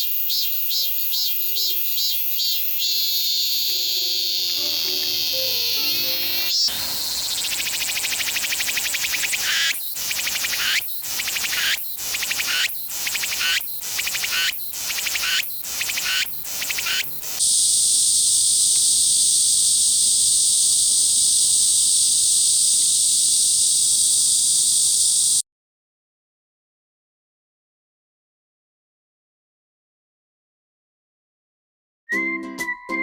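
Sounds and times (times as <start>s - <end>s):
cicada continuous high buzz: 0.0s - 25.4s
cicada rhythmic call: 0.0s - 25.4s.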